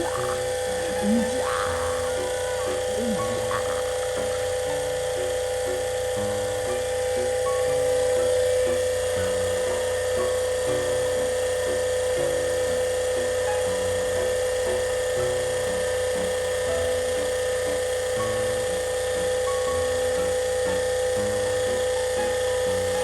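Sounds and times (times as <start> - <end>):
background melody: 0.0 - 11.2
electric pump motor whine: 0.0 - 23.0.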